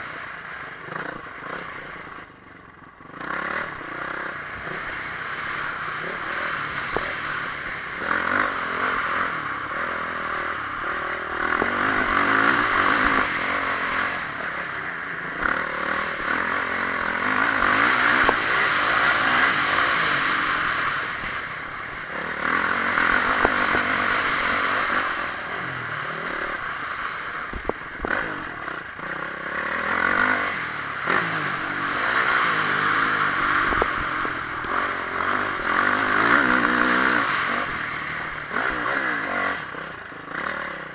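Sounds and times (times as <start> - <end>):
motocross bike engine revving: 0.0 - 40.9
steady rushing noise: 0.0 - 40.9.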